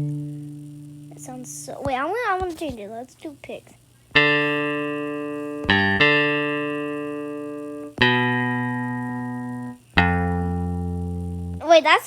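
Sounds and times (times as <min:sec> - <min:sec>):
picked electric bass notes: 0:00.0 - 0:01.6, 0:04.2 - 0:11.6.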